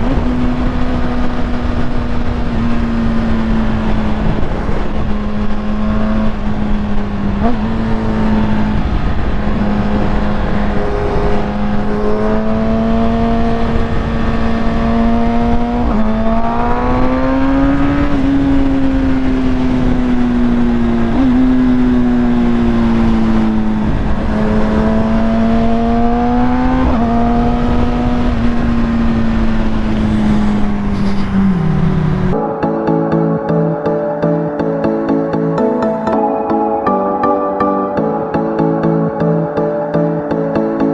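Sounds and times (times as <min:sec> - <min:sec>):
motorcycle engine running: 0:00.0 - 0:32.4.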